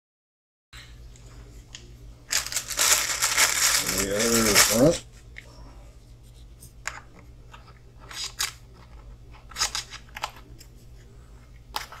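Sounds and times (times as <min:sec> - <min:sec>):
steady low hum: 0:00.8 - 0:12.0
hand tools clicking and scraping: 0:02.4 - 0:05.0.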